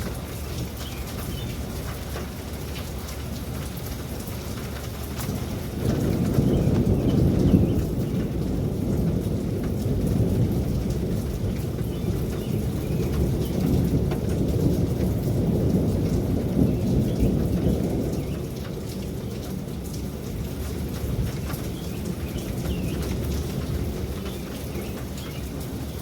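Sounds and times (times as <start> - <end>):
steady rain: 0.0 - 26.0
rolling thunder: 5.3 - 25.8.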